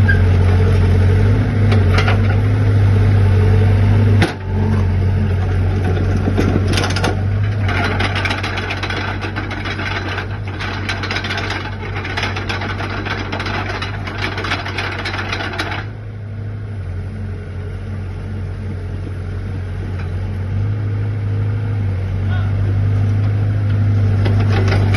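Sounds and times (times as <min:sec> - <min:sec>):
excavator diesel engine running: 0:00.0 - 0:24.9
mechanical rattling and clattering: 0:05.4 - 0:16.0, 0:24.2 - 0:24.9.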